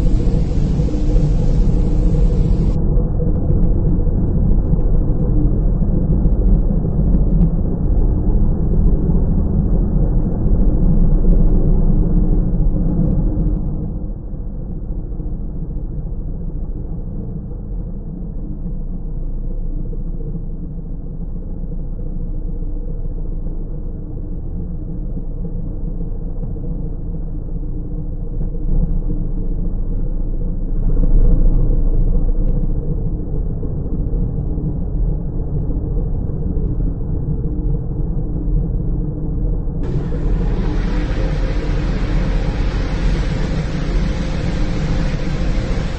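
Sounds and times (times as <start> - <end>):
car wash machinery rumbling: 0.0 - 2.8, 39.8 - 45.9
faint hum: 0.0 - 45.9.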